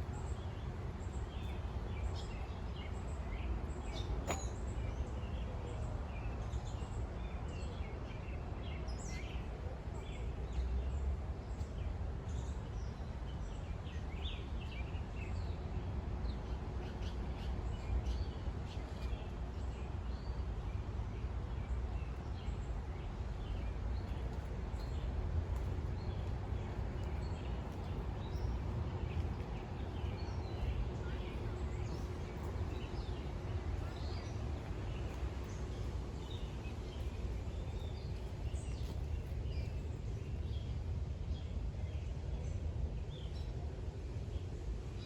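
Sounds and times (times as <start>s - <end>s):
birds chirping: 23.4s - 40.0s.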